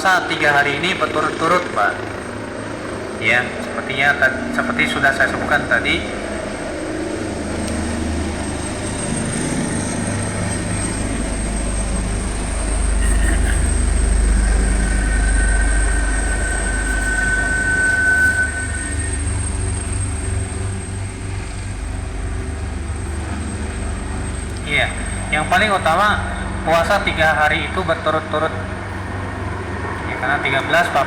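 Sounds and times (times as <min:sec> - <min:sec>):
passing vehicle rumble: 0:00.0 - 0:31.0
thin high squeal: 0:12.4 - 0:21.4.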